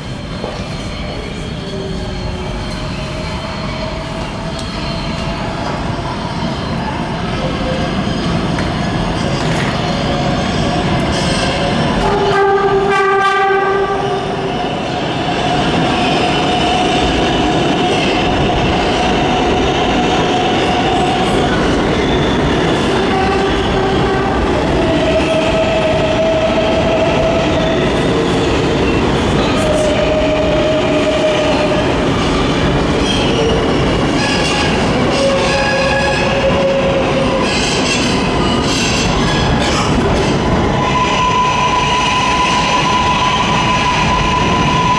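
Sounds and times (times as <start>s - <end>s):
subway train rumble: 0.0s - 44.9s
train horn blast: 12.0s - 14.5s.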